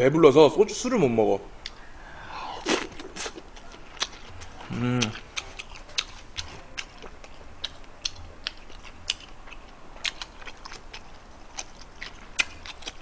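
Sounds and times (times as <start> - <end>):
person chewing food: 1.6 - 13.0
wet mouth clicks: 2.6 - 3.4.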